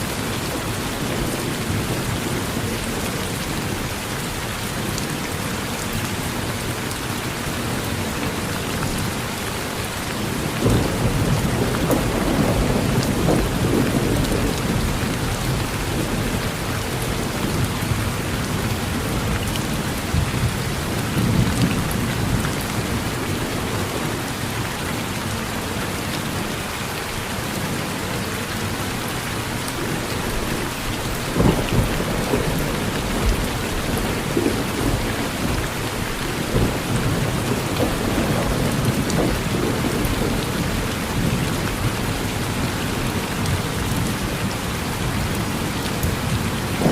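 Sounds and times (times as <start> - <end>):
heavy rain on a porch: 0.0 - 46.9
thunder rumbling: 10.2 - 24.6, 29.9 - 44.3, 45.0 - 46.9.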